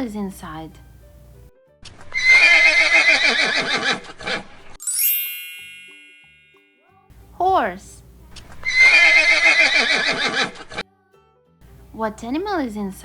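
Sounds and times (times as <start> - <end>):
horse whinnying: 2.1 - 4.6, 8.6 - 10.8
bright high chime: 4.8 - 6.8.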